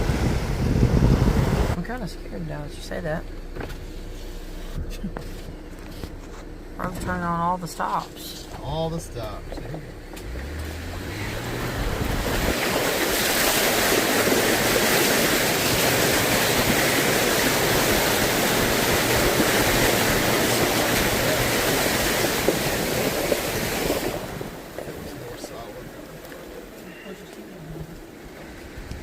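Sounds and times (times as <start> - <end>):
low engine hum: 0.0 - 29.0
water splashing against vehicle: 0.0 - 29.0.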